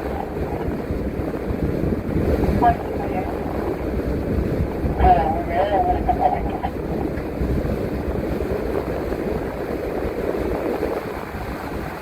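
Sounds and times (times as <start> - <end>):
bus engine rumble: 0.0 - 1.4, 2.0 - 7.6
road noise: 0.0 - 8.4.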